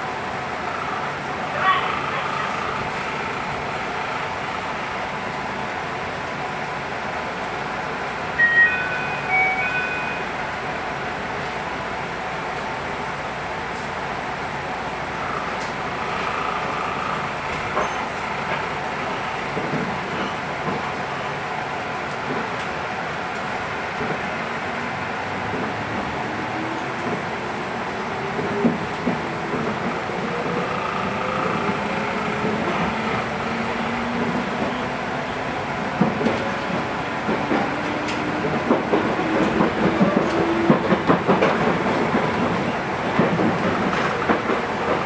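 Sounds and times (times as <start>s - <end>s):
train wheels rumbling on rails: 0.0s - 45.0s
wheels clicking over rail joints: 28.0s - 35.3s, 35.9s - 45.0s.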